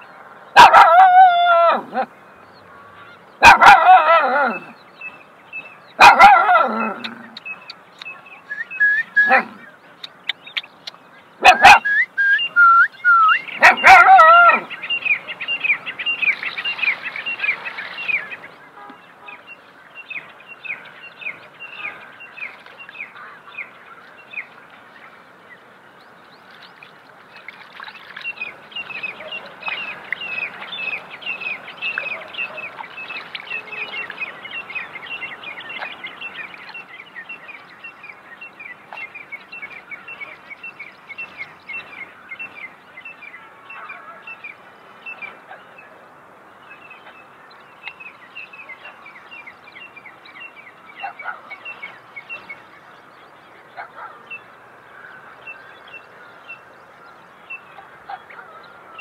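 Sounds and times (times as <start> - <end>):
bird chirping: 4.5 - 45.9, 46.6 - 59.0
water splashing in a basin: 26.5 - 30.8.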